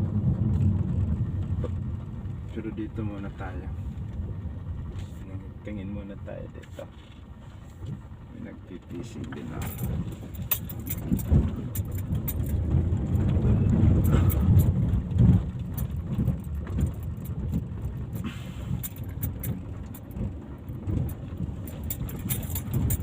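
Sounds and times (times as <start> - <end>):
vehicle rumbling: 0.0 - 23.0
light rattling clicks: 9.1 - 23.0.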